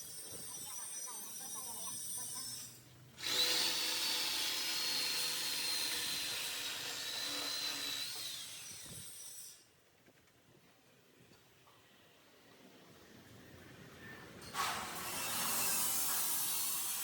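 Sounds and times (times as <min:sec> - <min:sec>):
power cutter cutting pipe: 0:00.9 - 0:09.6, 0:14.6 - 0:17.0.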